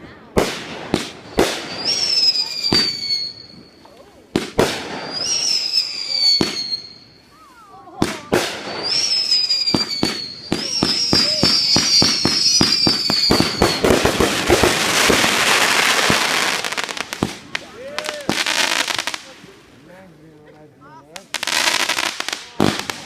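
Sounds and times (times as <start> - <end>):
fireworks bangs: 0.0 - 19.8, 21.2 - 23.0
fireworks crackling pops: 0.0 - 23.0
fireworks whistles: 0.8 - 17.4.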